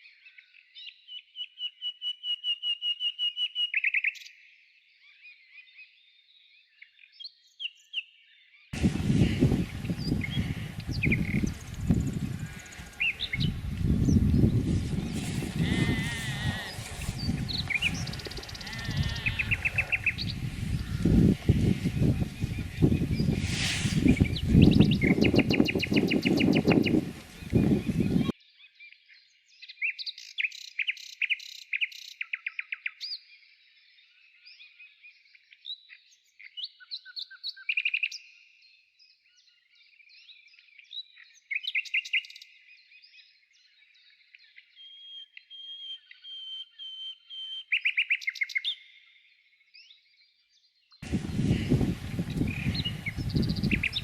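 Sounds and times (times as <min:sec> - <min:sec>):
songbirds chirping and trilling: 0:00.0 - 0:54.0
loud low rumbling noise: 0:08.8 - 0:25.2.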